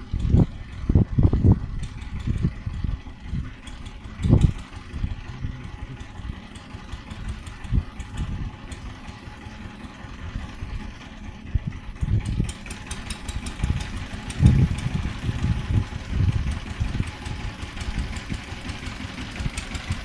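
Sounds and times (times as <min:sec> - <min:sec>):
power tiller engine thudding: 0:00.0 - 0:20.0
light clicking rattle: 0:01.6 - 0:09.2.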